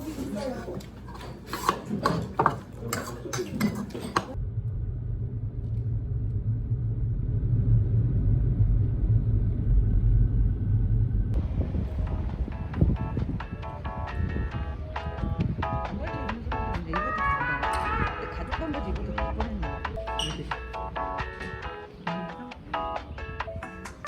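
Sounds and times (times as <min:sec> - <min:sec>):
car road and engine rumble: 0:04.4 - 0:16.8
voices: 0:15.6 - 0:24.0.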